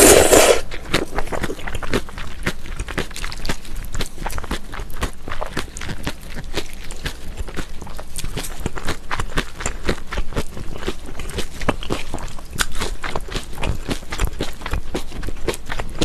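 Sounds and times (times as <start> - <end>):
chewing with clicks and crunches: 0.6 - 16.0.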